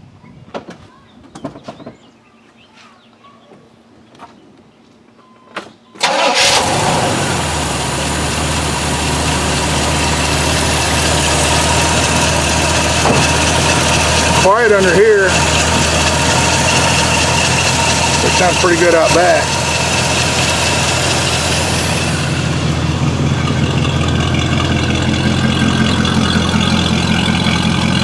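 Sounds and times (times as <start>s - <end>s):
car engine starting and idling: 6.0s - 28.0s.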